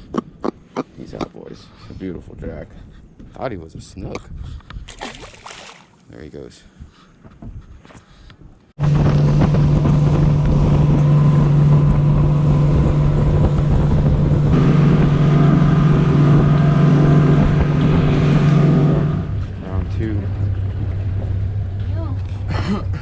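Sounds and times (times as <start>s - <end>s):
wind noise on microphone: 1.9s - 5.6s, 6.8s - 19.6s
motorboat engine running: 8.8s - 23.0s.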